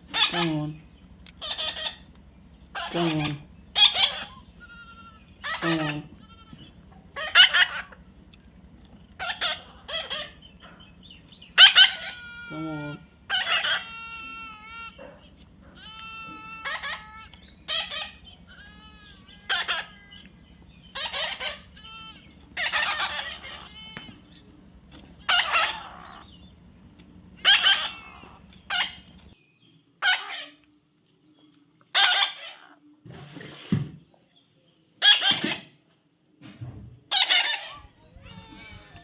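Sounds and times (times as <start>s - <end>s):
baby parrot calling and screeching: 0.0s - 0.5s, 1.4s - 8.0s, 9.1s - 10.7s, 11.6s - 24.4s, 25.1s - 26.4s, 27.4s - 29.2s, 30.0s - 30.6s, 31.9s - 32.8s, 35.0s - 35.7s, 37.1s - 38.8s.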